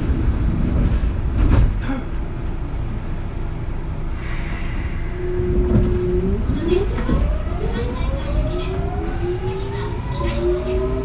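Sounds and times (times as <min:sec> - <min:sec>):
train wheels rumbling on rail: 0:00.0 - 0:11.0
rail joint clacks: 0:04.2 - 0:11.0
electric train motor whine: 0:05.0 - 0:11.0.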